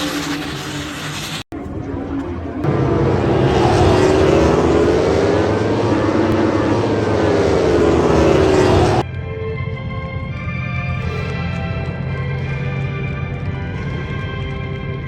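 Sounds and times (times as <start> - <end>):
aircraft flying low overhead: 0.0 - 15.0.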